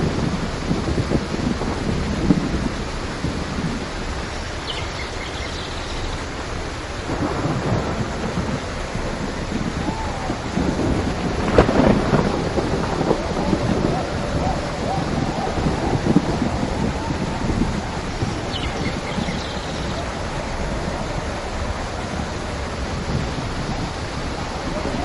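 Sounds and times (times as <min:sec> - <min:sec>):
thunder rumbling and cracking: 0:00.0 - 0:04.3, 0:06.3 - 0:25.0
steady rain: 0:00.0 - 0:25.0.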